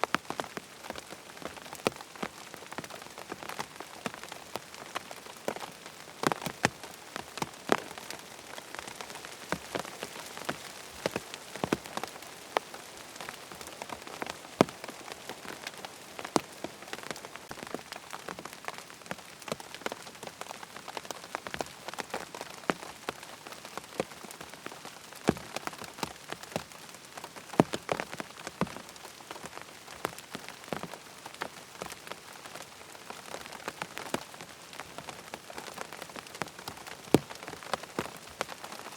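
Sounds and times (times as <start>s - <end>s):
rain pattering on a tent: 0.0s - 38.9s.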